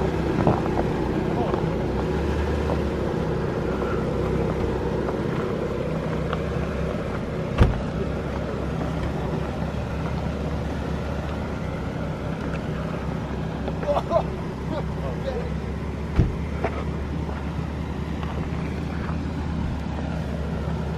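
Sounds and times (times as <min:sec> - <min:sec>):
car engine running at low revs: 0:00.0 - 0:20.9
sharp thump: 0:07.6 - 0:07.9, 0:16.1 - 0:16.8.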